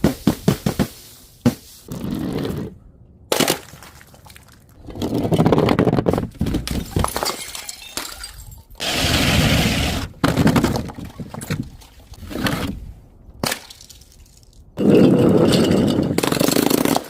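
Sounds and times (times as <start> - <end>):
glass bottles smashing: 6.6 - 8.8
glass shards rattling: 6.8 - 8.8.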